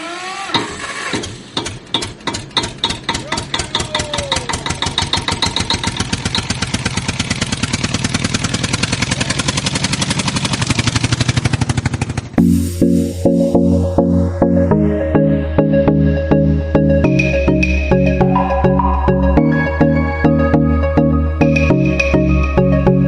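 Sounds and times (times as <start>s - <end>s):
small machine clicking: 0.5s - 6.6s.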